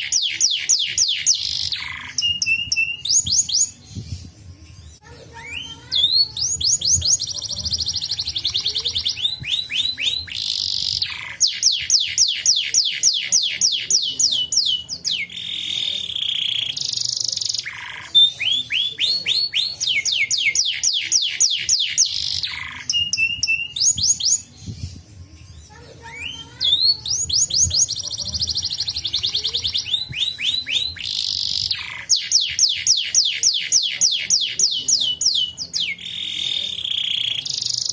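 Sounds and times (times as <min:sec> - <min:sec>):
canary singing: 0:00.0 - 0:37.9.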